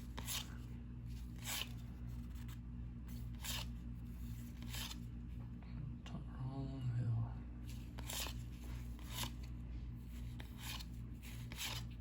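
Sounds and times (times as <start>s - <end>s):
low electrical hum: 0.0s - 12.0s
cards sliding off a stack: 3.2s - 3.7s, 4.4s - 5.1s, 7.7s - 9.5s, 10.2s - 12.0s.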